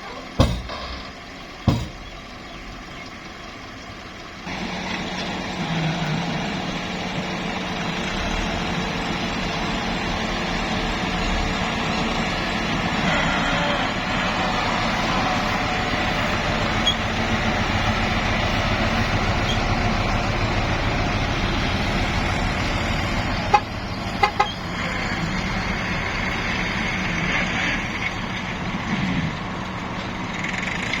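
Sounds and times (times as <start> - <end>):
truck engine running: 0.0 - 31.0
sharp knocks: 0.4 - 2.2.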